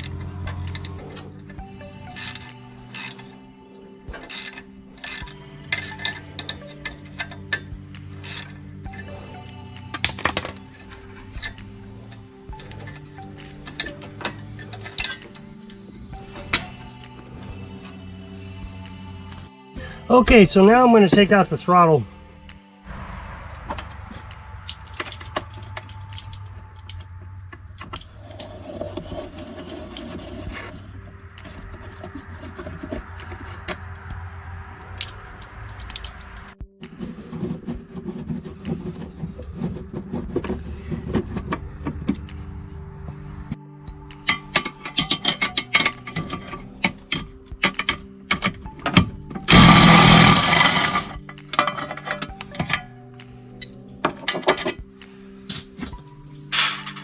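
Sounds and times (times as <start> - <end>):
hand tools clicking and rattling: 0.0 - 19.5, 23.7 - 43.6, 44.3 - 57.0
steady low hum: 0.0 - 57.0
loud burst of noise: 22.8 - 28.1, 49.5 - 51.2.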